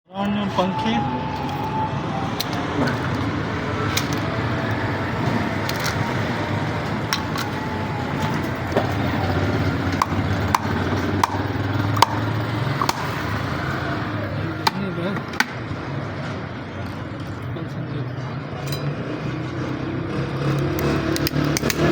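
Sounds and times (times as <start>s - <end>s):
sharp clicks and knocks: 9.8s - 13.4s, 20.5s - 21.9s.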